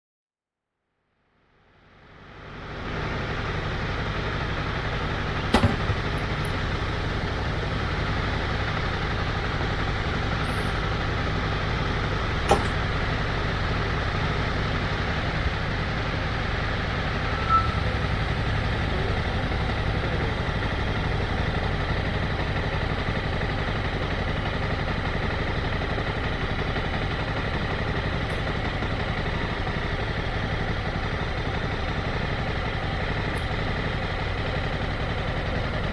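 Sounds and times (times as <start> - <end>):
motorcycle engine idling: 1.6 - 35.9.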